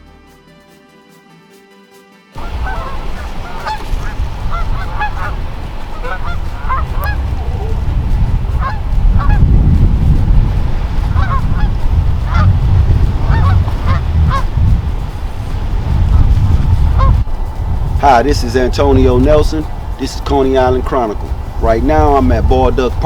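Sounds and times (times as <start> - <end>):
geese honking: 2.4 - 17.3
low rumble: 2.4 - 23.0.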